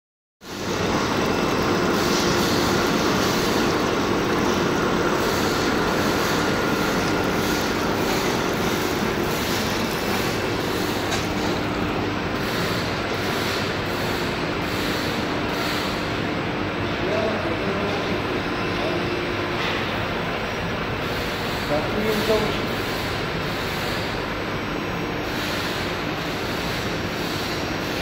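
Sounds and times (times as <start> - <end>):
extrusion machine hum: 0.4 - 15.7.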